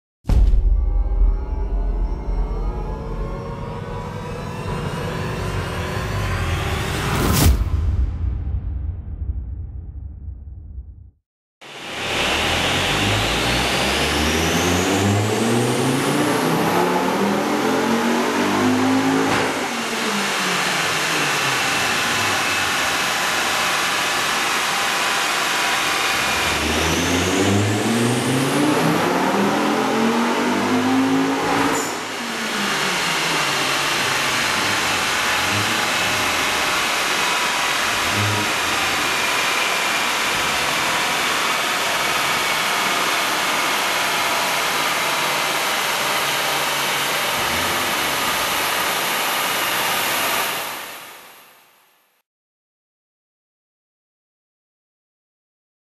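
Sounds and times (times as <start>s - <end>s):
car engine revving on dyno: 11.6s - 51.4s.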